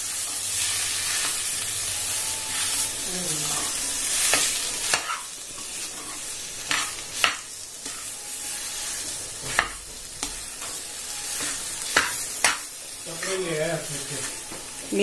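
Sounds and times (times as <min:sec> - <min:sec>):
spatula scraping and tapping pan: 0:04.2 - 0:08.1, 0:09.0 - 0:13.4.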